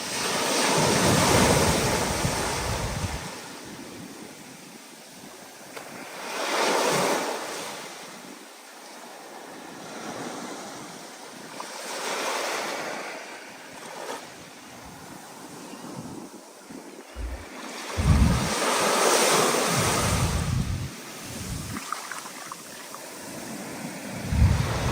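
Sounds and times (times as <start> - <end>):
wind gusting across microphone: 0.8 - 3.6, 15.8 - 24.9
waves breaking: 11.6 - 24.9.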